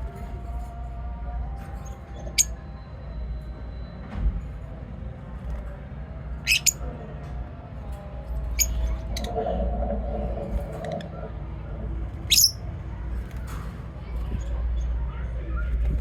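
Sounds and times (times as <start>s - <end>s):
steady low hum: 7.8s - 15.2s
lovebirds chirping and squawking: 12.3s - 12.6s.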